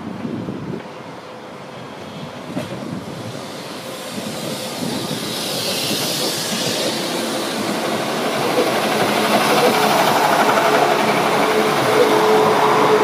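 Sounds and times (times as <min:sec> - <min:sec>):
train wheels on rails: 0:00.0 - 0:13.0
high hiss: 0:03.1 - 0:10.6.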